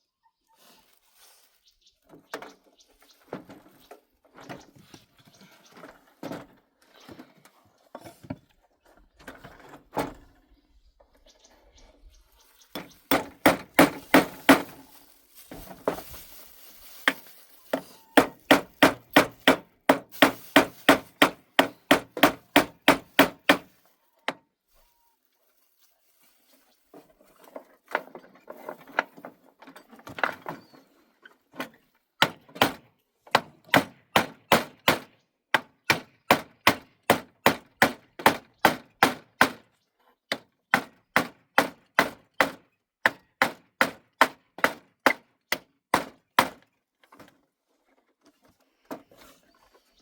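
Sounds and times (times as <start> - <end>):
scraping and rustling: 12.4 - 21.6
hand tool striking wood: 12.7 - 14.8, 17.0 - 23.7, 32.2 - 39.6, 40.3 - 46.6.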